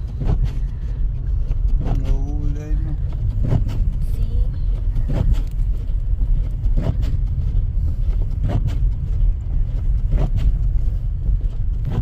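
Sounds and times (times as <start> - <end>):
car engine and road rumble: 0.0 - 12.0
short swish: 8.4 - 8.8, 10.1 - 10.6.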